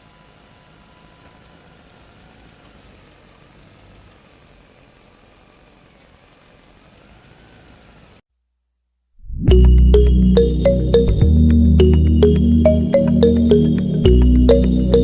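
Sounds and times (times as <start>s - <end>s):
small motor running: 0.0s - 8.2s.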